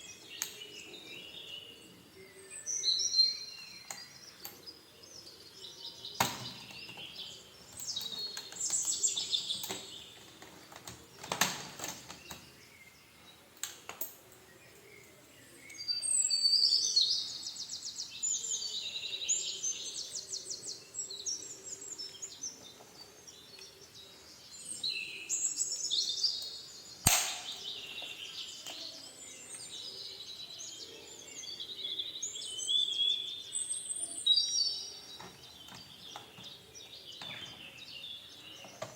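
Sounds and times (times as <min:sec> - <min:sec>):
small birds chirping: 0:00.0 - 0:38.9
sharp clicks or knocks: 0:27.1 - 0:27.7.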